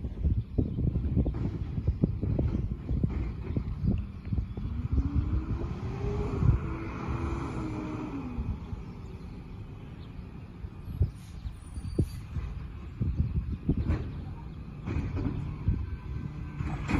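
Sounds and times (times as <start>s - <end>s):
low rumble with sharp knocks: 0.0s - 7.3s, 12.3s - 16.9s
truck engine revving: 2.2s - 10.7s.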